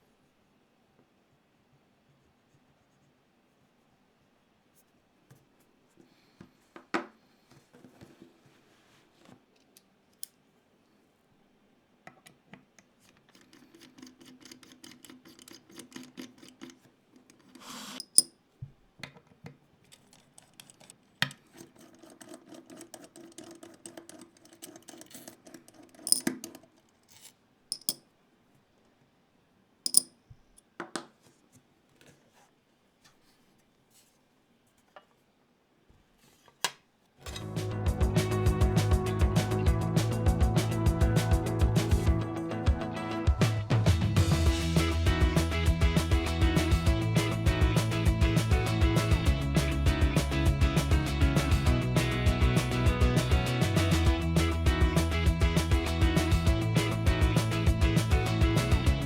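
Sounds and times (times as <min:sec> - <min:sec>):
keyboard parts clicking and clinking: 0:13.1 - 0:18.3, 0:19.8 - 0:28.0, 0:29.9 - 0:30.1.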